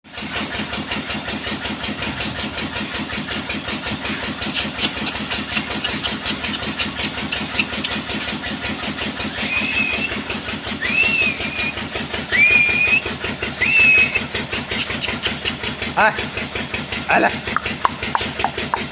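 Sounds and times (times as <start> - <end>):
engine running: 0.0 - 18.9
high clear rising calls: 9.2 - 15.0.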